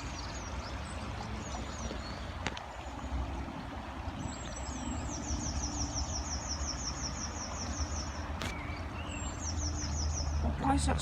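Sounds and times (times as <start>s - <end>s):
small songbird singing: 4.2s - 11.0s.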